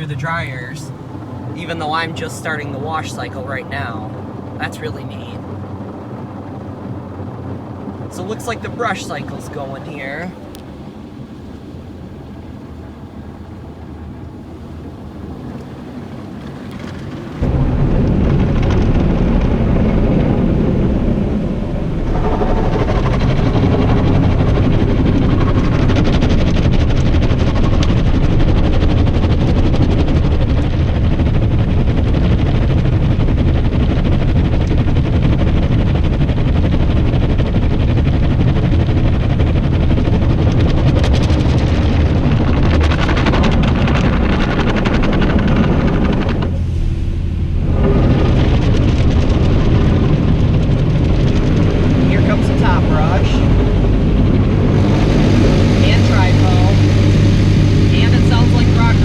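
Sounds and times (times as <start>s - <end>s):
low rumble: 0.0s - 59.0s.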